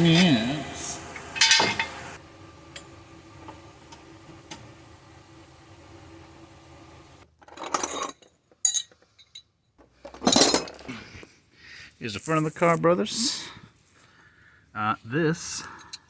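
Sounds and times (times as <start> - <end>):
low steady hum: 0.0 - 7.2
metallic clinking and clatter: 1.3 - 2.0.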